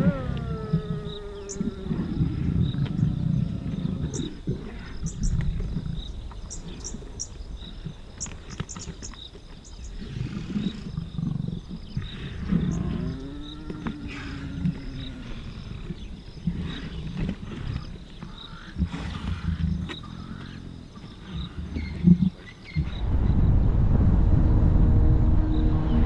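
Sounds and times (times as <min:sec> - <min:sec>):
lion snarling: 0:00.0 - 0:07.2, 0:09.8 - 0:23.0
lions growling: 0:00.0 - 0:07.2, 0:09.8 - 0:23.0.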